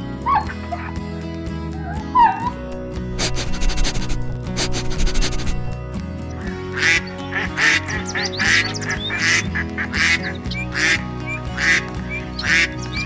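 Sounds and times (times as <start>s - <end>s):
background music: 0.0s - 13.0s
duck quacking: 6.7s - 13.0s.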